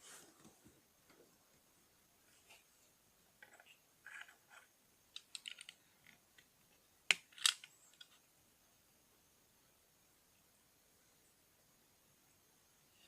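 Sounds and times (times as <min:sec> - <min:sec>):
plastic bricks clicking and rattling: 0:05.2 - 0:06.2, 0:07.1 - 0:08.2.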